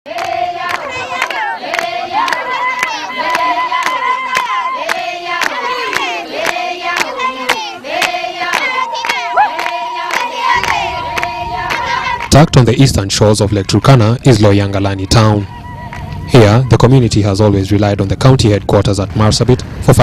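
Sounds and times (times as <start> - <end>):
rhythmic hand clapping: 0.1 - 13.0, 15.1 - 16.7
group of voices singing: 0.1 - 14.6.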